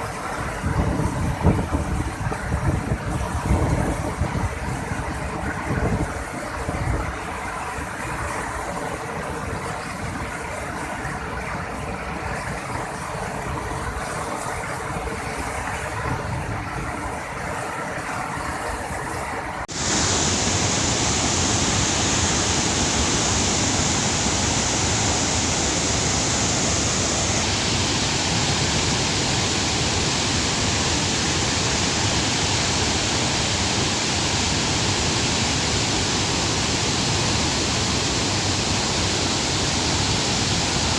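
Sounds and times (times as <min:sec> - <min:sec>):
waterfall rushing: 0:16.9 - 0:40.9.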